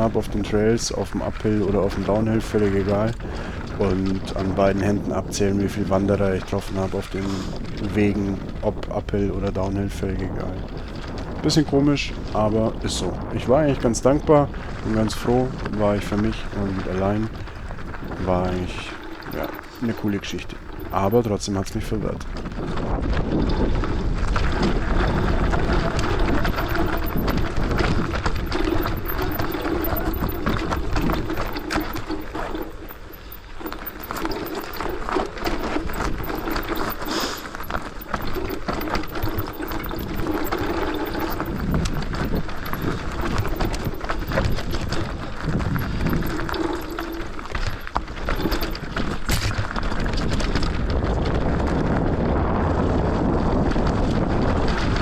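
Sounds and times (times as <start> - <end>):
bike rattling and clattering: 0.0 - 55.0
bike tyres on dirt and rock: 0.0 - 55.0
wavering hum: 10.4 - 22.8, 25.5 - 49.7.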